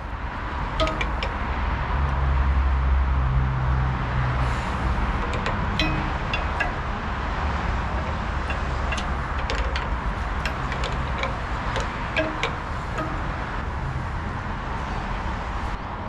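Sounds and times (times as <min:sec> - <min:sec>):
engine idling: 0:00.0 - 0:01.5, 0:04.4 - 0:14.8
metallic clicks and clinks: 0:00.8 - 0:01.4, 0:05.1 - 0:13.6.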